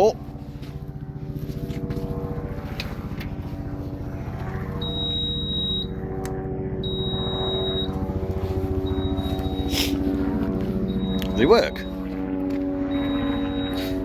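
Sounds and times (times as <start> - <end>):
engine running: 0.0 - 14.0
electronic warning beeps: 4.8 - 6.0, 6.8 - 10.2, 10.8 - 12.2, 12.9 - 14.0.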